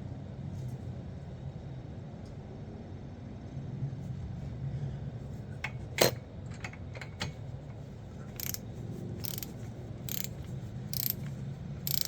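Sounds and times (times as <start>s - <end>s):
ratchet wrench clicking: 8.3s - 8.6s, 9.2s - 12.0s.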